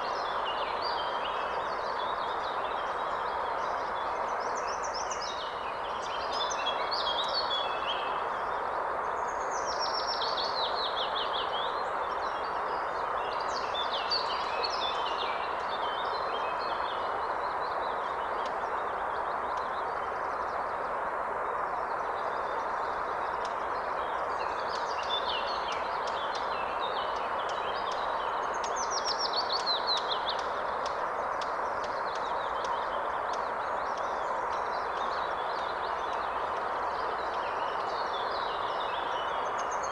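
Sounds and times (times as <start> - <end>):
songbirds singing: 0.0 - 39.9
river flowing: 12.8 - 39.9.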